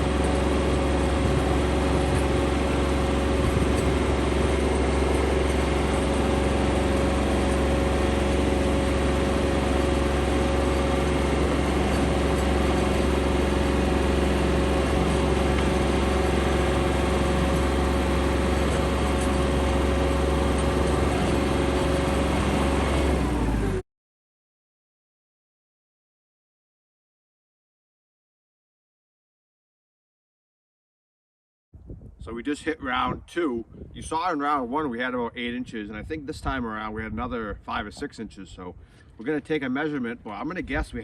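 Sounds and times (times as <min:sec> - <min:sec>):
tractor diesel engine running: 0:00.0 - 0:23.8.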